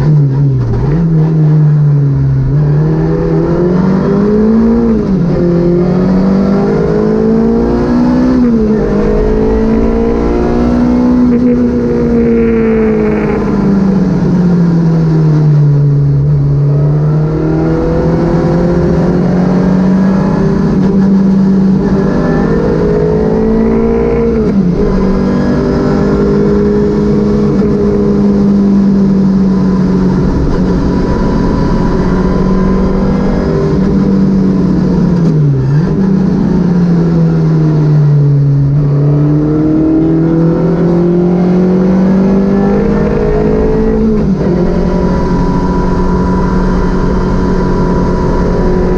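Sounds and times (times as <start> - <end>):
car engine accelerating and shifting: 0.0 - 48.9.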